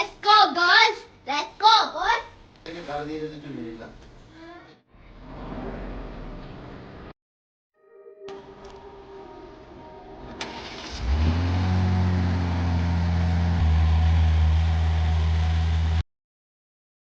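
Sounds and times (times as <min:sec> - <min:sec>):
car engine starting and idling: 0:10.2 - 0:16.0.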